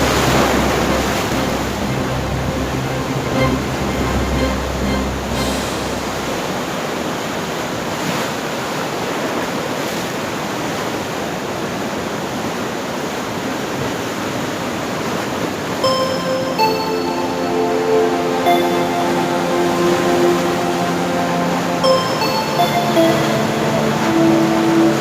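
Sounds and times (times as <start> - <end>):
low hum with tones: 0.0 - 7.8
sea surf washing: 0.0 - 11.8, 13.9 - 25.0.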